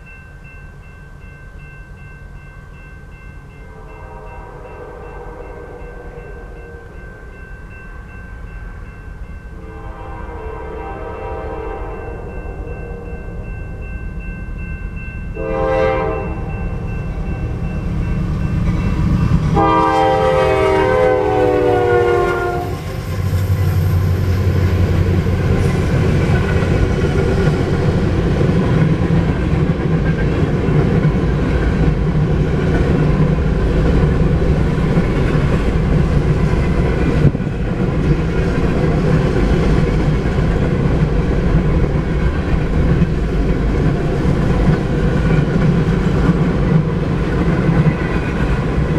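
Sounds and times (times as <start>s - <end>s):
locomotive horn blasts: 3.7s - 7.0s, 9.6s - 13.4s, 15.4s - 17.3s, 19.5s - 23.0s
diesel locomotive rumble: 13.3s - 48.9s.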